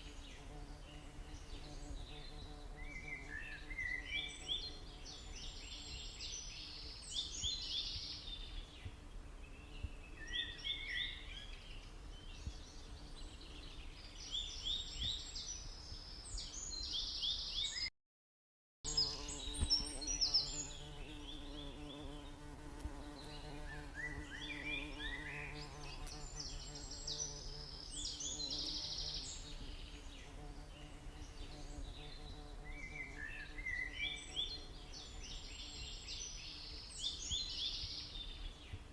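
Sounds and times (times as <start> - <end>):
birds chirping: 18.9 - 38.9.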